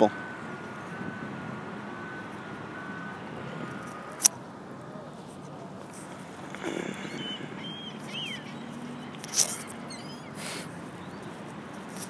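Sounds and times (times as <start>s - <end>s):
short high bird chirps: 6.6s - 11.3s.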